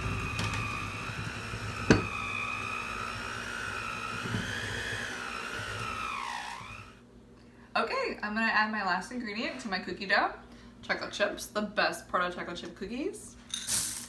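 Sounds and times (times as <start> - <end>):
electric hand mixer whine: 0.0 - 7.0.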